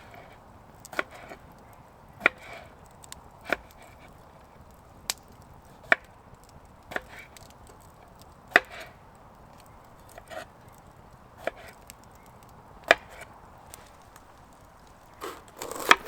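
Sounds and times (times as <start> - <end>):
chopping strikes on wood: 2.2 - 2.6, 8.5 - 8.9, 12.8 - 13.3.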